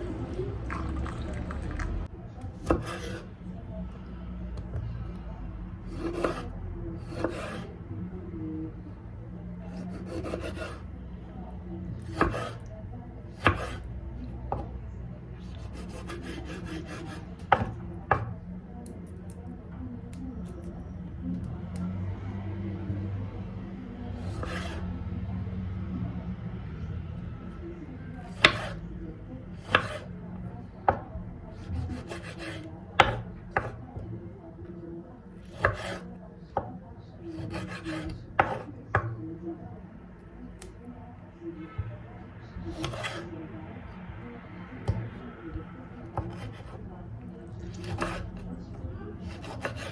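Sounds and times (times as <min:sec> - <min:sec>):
knife chopping on cutting board: 0:02.6 - 0:03.3, 0:05.9 - 0:07.7, 0:09.8 - 0:10.8, 0:12.0 - 0:12.7, 0:13.4 - 0:13.9, 0:15.5 - 0:18.3, 0:24.2 - 0:24.8, 0:28.4 - 0:28.8, 0:29.6 - 0:30.1, 0:31.6 - 0:33.8, 0:35.4 - 0:36.7, 0:37.3 - 0:39.1, 0:42.7 - 0:43.2, 0:46.2 - 0:46.8, 0:47.7 - 0:48.4, 0:49.3 - 0:49.9.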